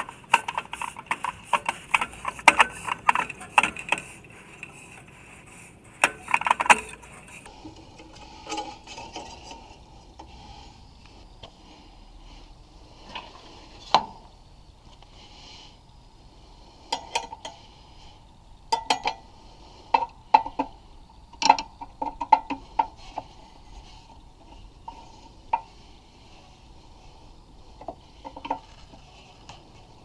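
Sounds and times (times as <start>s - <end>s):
metal parts clinking and tapping: 0.0s - 7.5s.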